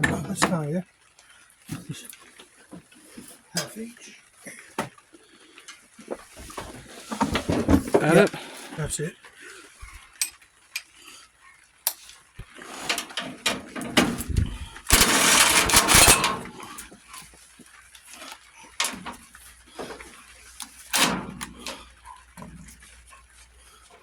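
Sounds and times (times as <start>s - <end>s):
power tool bursts: 14.9s - 16.8s.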